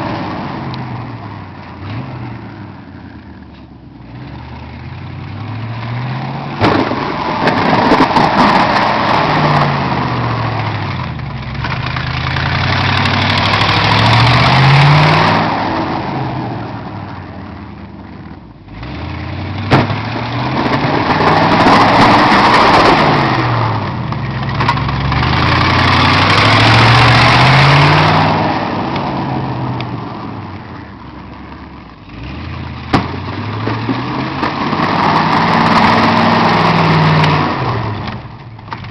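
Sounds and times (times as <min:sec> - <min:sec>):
snow plow engine revving: 0:00.0 - 0:38.9.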